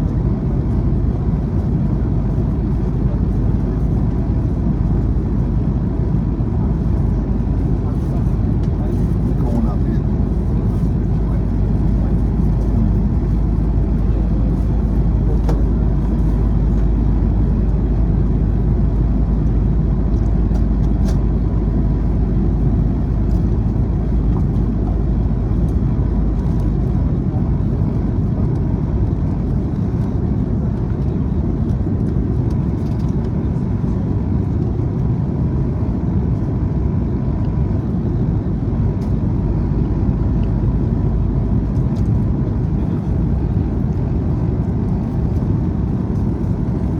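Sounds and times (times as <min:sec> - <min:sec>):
vehicle rumbling in motion: 0:00.0 - 0:46.9.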